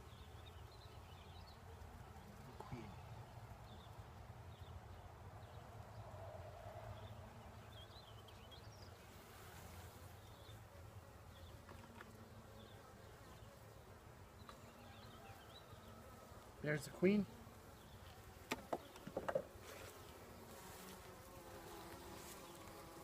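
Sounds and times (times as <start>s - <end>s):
bees buzzing: 9.0s - 23.0s.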